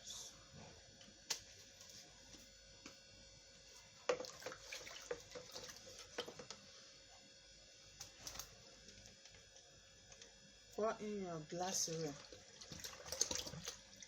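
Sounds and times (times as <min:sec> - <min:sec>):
liquid pouring into bowl of water: 0:04.1 - 0:06.4, 0:11.8 - 0:14.0.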